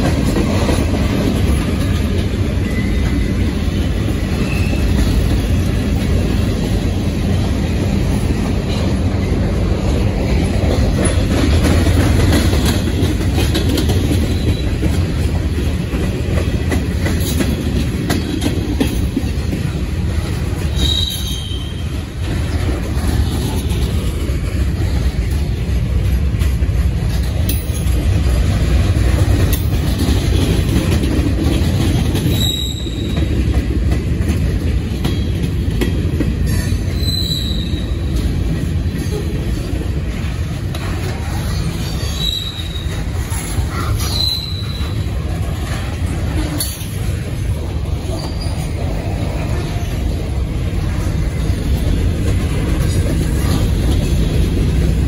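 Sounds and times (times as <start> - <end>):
freight train wheels rumbling: 0.0 - 55.0
high-pitched wheel squeals: 20.7 - 21.9, 32.3 - 33.3, 36.9 - 38.0, 41.9 - 43.1, 43.9 - 45.0.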